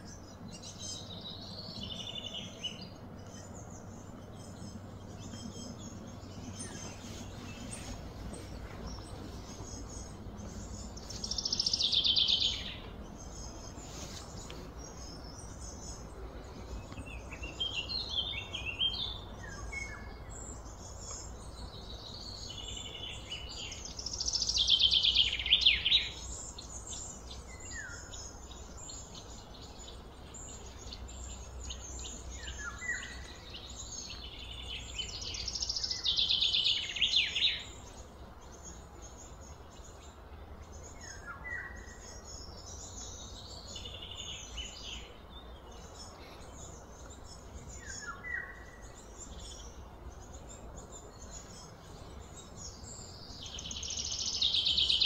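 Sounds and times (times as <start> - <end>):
birds chirping softly: 0.0 - 55.0
faint low hum: 0.0 - 55.0
songbird trilling: 0.0 - 55.0.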